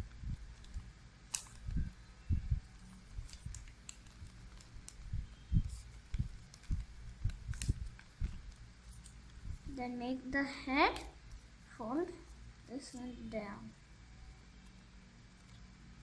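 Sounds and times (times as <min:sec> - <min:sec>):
paper being folded: 0:02.7 - 0:09.8.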